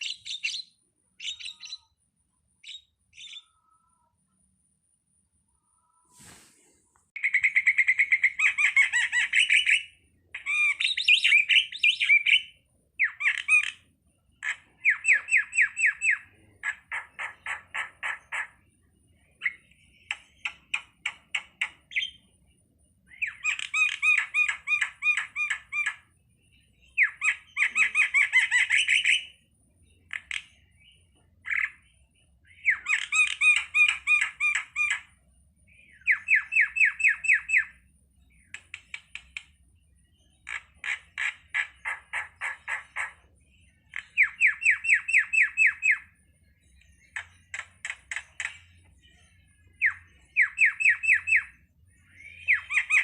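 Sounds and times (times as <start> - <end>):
starling chattering song: 7.2 - 18.6, 26.9 - 29.4, 32.5 - 35.1, 40.4 - 53.0.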